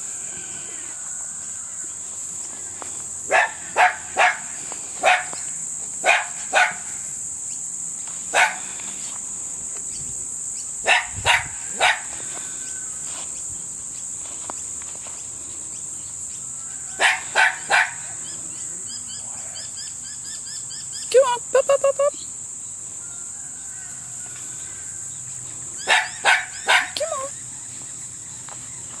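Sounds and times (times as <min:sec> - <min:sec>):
puppy yapping: 0:25.8 - 0:27.3.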